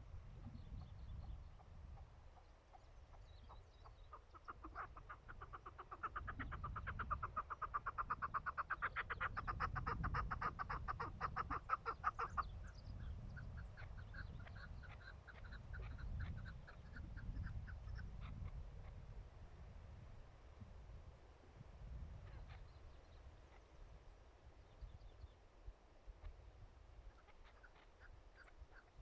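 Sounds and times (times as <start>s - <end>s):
low wind rumble: 0.0s - 27.2s
partridge clucking calls: 0.4s - 12.7s, 13.3s - 19.0s, 27.1s - 29.0s.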